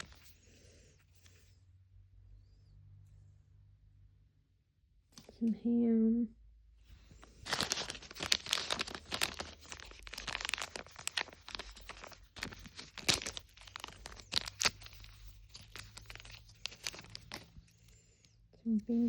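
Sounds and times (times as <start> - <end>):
plastic packaging crinkling and tearing: 0.0 - 0.2, 7.1 - 17.8.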